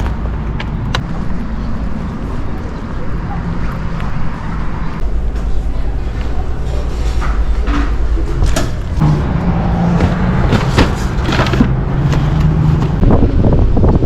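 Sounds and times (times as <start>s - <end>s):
steady low hum: 0.0s - 11.2s
wind and road rumble: 0.0s - 14.0s.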